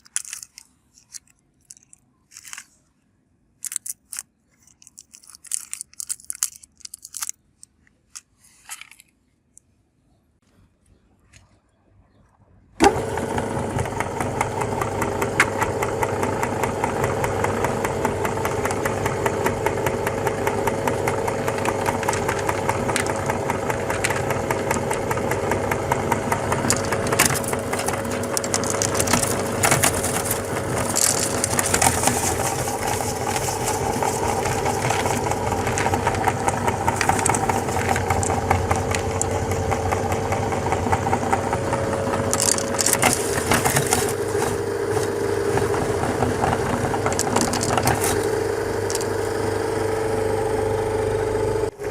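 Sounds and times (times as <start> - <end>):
hard candy crunching: 0.0 - 2.9, 3.6 - 9.2, 20.8 - 40.1, 42.2 - 49.4
meat grinder motor hum: 12.8 - 51.9.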